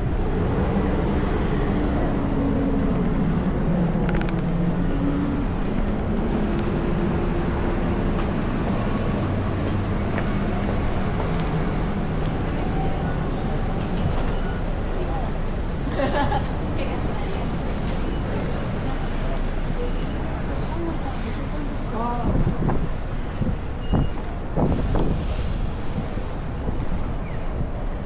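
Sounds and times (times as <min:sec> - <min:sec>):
urban street traffic rumble: 0:00.0 - 0:28.0
vehicle engine hum: 0:00.0 - 0:28.0.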